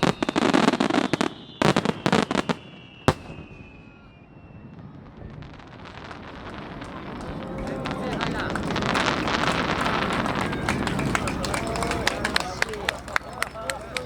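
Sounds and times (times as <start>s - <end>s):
falling firework whistle: 0.0s - 11.9s
firework bang: 0.0s - 11.9s
fireworks crackling: 0.0s - 14.0s.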